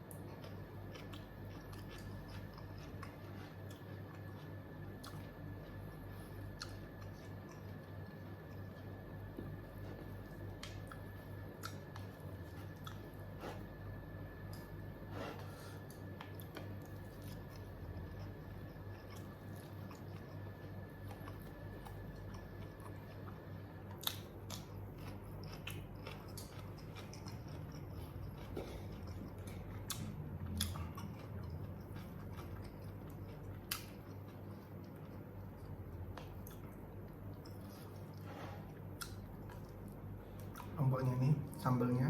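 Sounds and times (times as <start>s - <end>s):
steady low hum: 0.0s - 42.0s
person chewing and biting: 0.1s - 14.8s, 15.4s - 40.8s.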